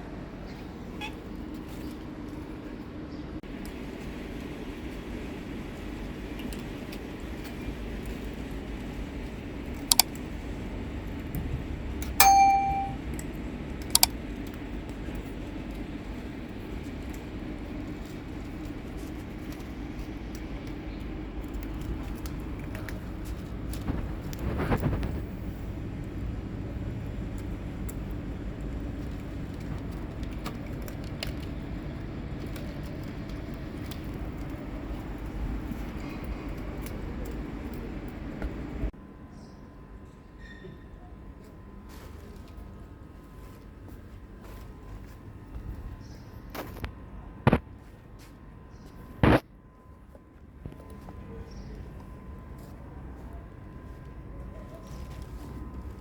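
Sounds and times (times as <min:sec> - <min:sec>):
low outdoor rumble: 0:00.0 - 0:12.2, 0:12.8 - 0:40.2
ringing metallic clang: 0:12.2 - 0:13.0.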